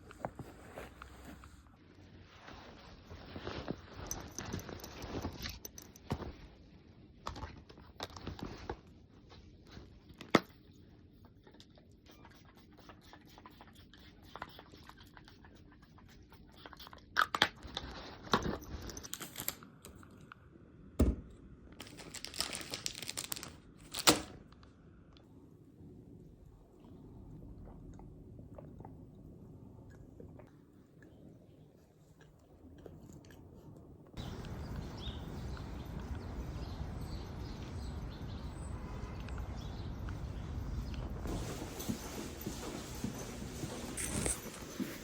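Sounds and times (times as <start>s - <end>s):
rustling: 0.0s - 6.6s, 21.8s - 24.2s, 40.4s - 45.0s
material crinkling and tearing: 21.8s - 24.3s.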